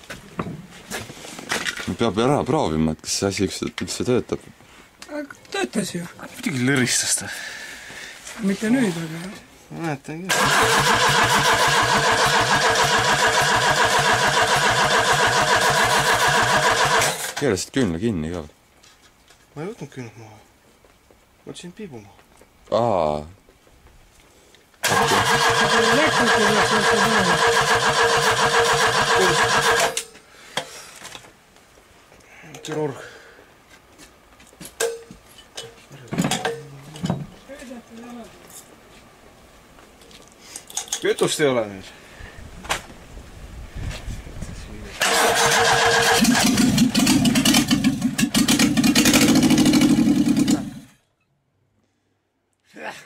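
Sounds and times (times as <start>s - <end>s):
engine cranking: 10.3s - 17.4s, 24.8s - 30.1s, 45.0s - 51.0s
starter motor whine: 10.3s - 17.4s, 24.8s - 30.0s, 45.0s - 50.9s.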